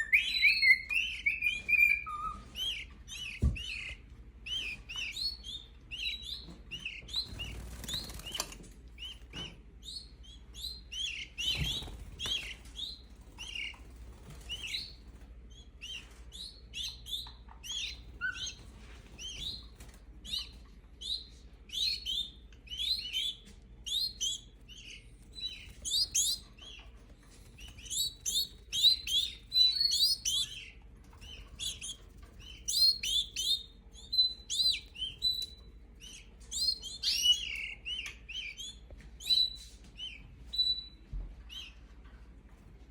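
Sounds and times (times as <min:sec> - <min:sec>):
young canaries chirping: 0:00.0 - 0:41.9
wing flutters: 0:07.2 - 0:08.8.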